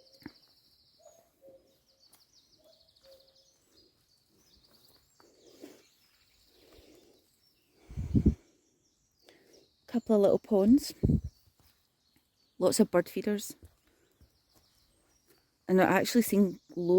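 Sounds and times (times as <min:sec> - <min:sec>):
faint songbird trills: 0:00.0 - 0:16.9.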